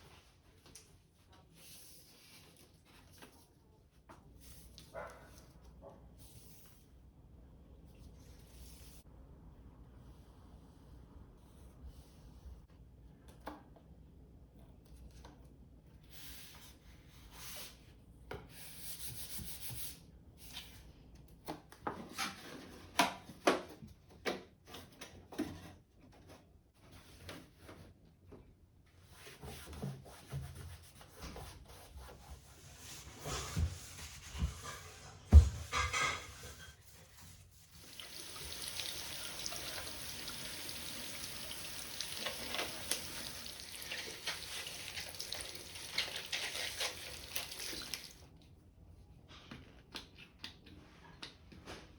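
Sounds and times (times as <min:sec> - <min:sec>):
objects rubbing and scraping: 0:32.2 - 0:37.6.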